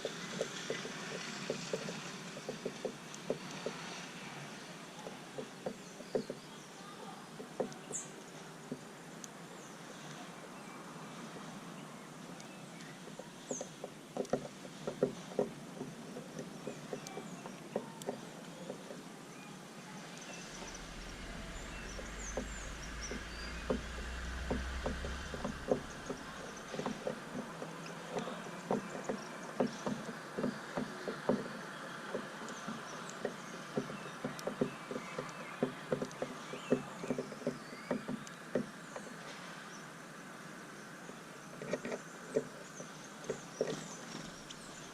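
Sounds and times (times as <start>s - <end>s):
birds pecking on feeder: 0.0s - 9.2s, 12.4s - 39.0s
faint high bird chirps: 16.7s - 27.1s.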